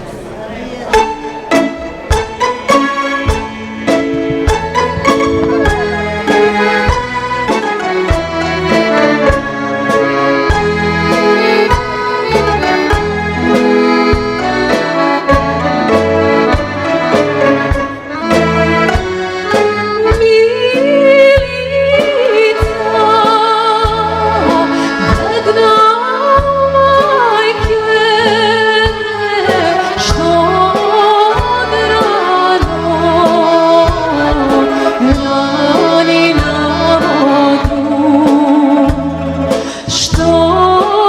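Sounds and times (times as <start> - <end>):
folk band with accordion: 0.0 - 41.0
woman singing with vibrato: 19.8 - 41.0.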